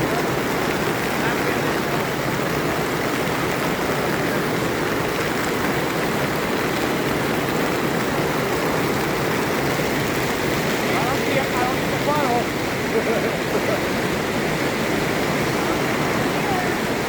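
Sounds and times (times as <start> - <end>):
hail and rain pelting down: 0.0 - 17.0.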